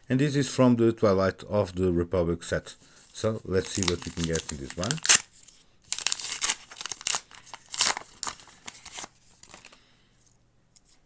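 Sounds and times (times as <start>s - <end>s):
wrapper crinkling: 3.1s - 9.8s.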